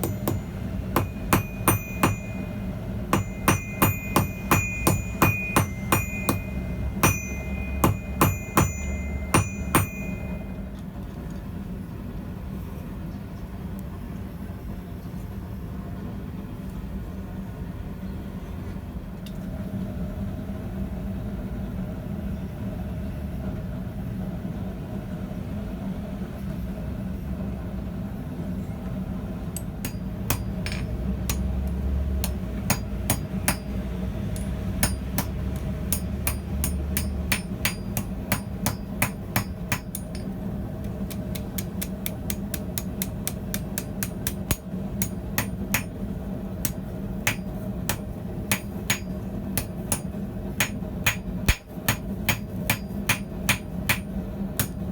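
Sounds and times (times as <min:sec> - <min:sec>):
hammer striking steel on anvil: 0:00.0 - 0:10.6, 0:29.5 - 0:46.0, 0:46.6 - 0:54.9
steady low hum: 0:00.0 - 0:54.9.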